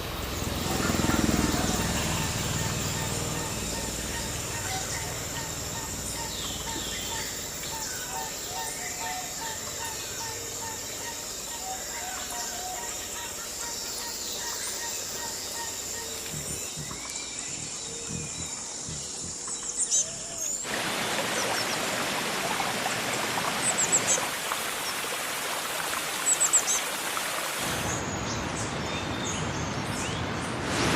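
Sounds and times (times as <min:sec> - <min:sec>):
birds chirping and singing: 0:00.3 - 0:20.7.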